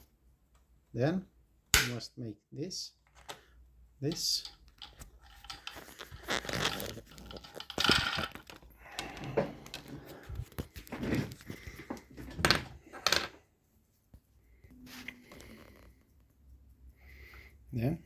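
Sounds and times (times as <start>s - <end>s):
sewing machine parts handled: 4.1s - 11.5s.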